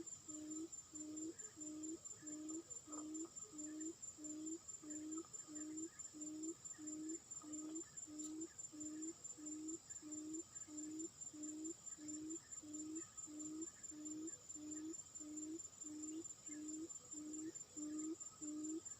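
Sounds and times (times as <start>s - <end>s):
faint high-pitched whine: 0.0s - 18.9s.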